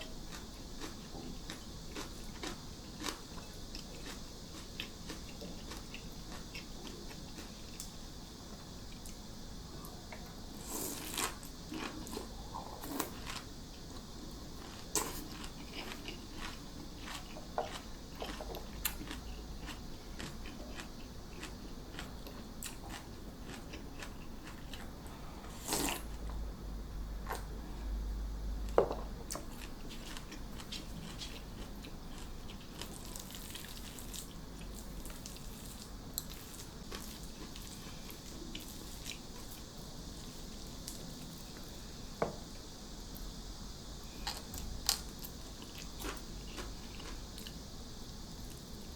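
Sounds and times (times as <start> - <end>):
crunching and chewing: 0.0 - 8.0, 10.1 - 26.1, 29.3 - 39.8, 44.1 - 48.9.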